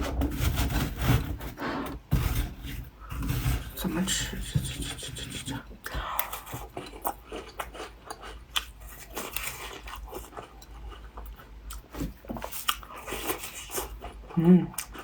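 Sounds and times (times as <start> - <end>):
biting and chewing a crumbly cookie: 5.7 - 15.0.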